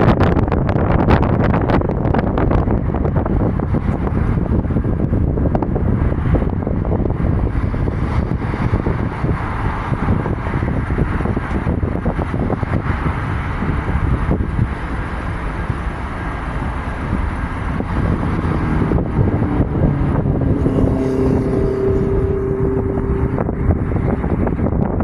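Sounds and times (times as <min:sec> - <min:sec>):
wind buffeting microphone: 0:00.0 - 0:25.0
jet engines rumbling: 0:11.7 - 0:25.0.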